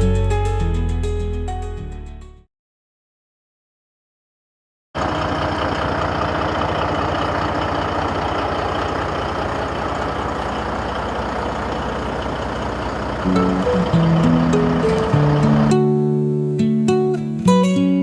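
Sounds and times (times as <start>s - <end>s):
truck engine idling: 5.0s - 15.8s.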